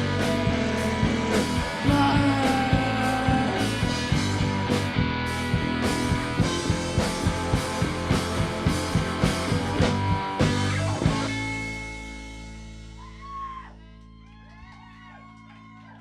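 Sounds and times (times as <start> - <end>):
drum kit hits: 0.0 - 12.6
electric guitar: 0.0 - 14.3
bass guitar: 0.0 - 16.0.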